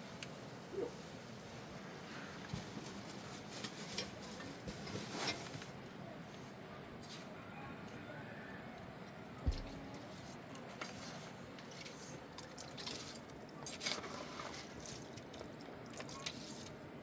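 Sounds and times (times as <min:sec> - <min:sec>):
thump: 0:09.4 - 0:09.8.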